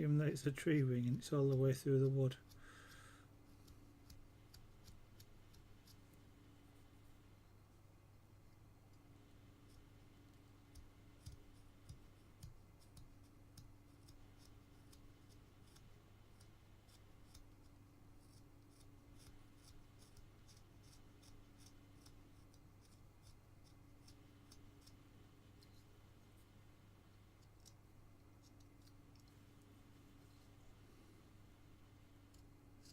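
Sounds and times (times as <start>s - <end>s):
steady low hum: 0.0s - 32.9s
carving knife ticking in wood: 1.1s - 6.0s, 10.6s - 25.0s, 27.4s - 29.3s, 32.3s - 32.9s.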